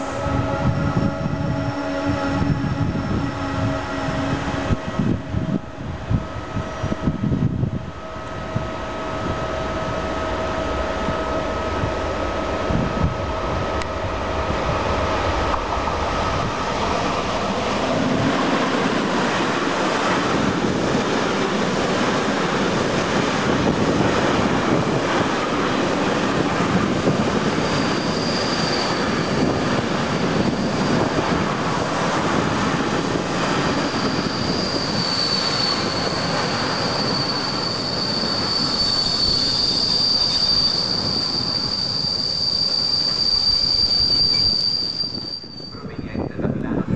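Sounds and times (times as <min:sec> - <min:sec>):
train rumble and wheel clatter: 0:00.0 - 0:46.9
high wheel squeal: 0:27.0 - 0:31.8, 0:33.1 - 0:46.1.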